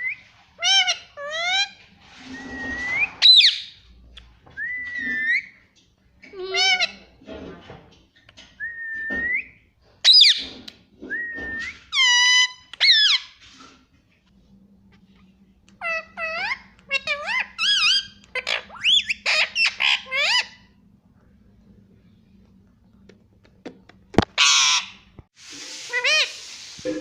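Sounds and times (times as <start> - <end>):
parakeet whistling and calling: 2.3 - 3.8, 4.6 - 5.6, 8.6 - 10.5, 15.8 - 20.7.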